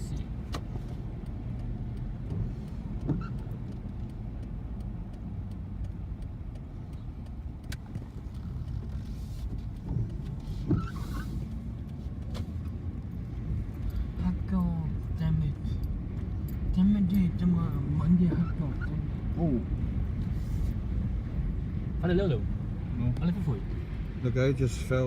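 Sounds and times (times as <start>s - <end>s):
car interior road rumble: 0.0s - 25.0s.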